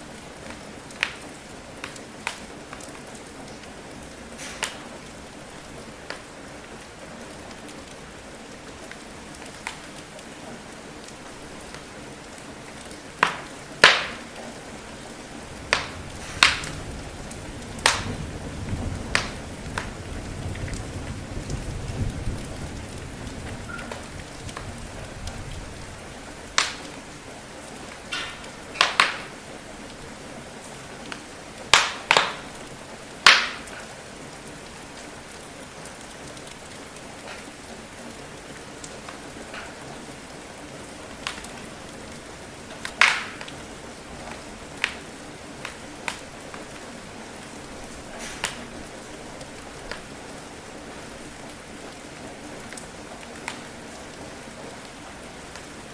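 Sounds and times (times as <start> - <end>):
steady rain: 0.0 - 55.9
wood fire crackling and popping: 0.1 - 8.0, 8.8 - 10.3, 11.0 - 30.0, 30.6 - 40.1, 41.1 - 50.1, 52.7 - 54.1
thunder rumble: 14.8 - 27.2.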